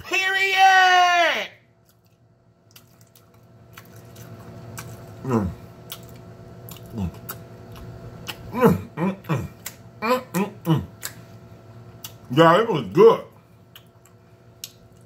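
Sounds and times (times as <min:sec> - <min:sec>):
faint steady hum: 0:00.0 - 0:15.0
man chewing: 0:01.8 - 0:12.3, 0:13.5 - 0:15.0
wet mouth clicks: 0:05.8 - 0:08.5, 0:09.5 - 0:11.2, 0:13.7 - 0:15.0
man humming mmm: 0:08.4 - 0:11.0.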